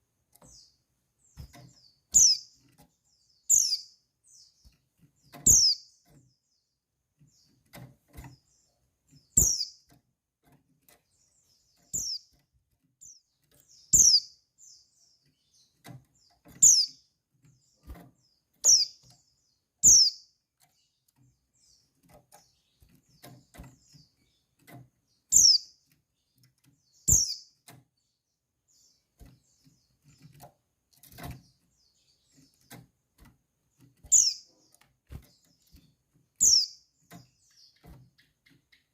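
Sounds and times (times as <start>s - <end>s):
light knocks and rustles: 0.3s - 3.2s, 7.2s - 13.8s, 20.6s - 25.2s, 29.1s - 36.4s.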